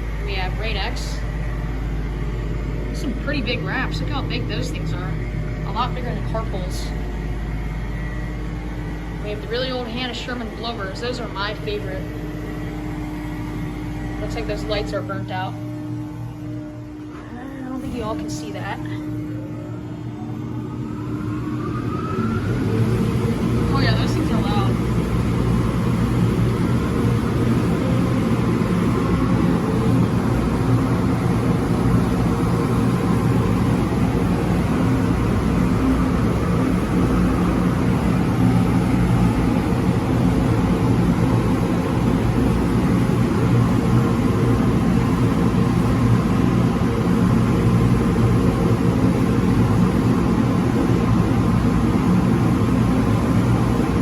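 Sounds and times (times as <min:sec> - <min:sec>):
car wash air blowers rushing: 0:20.6 - 0:54.0.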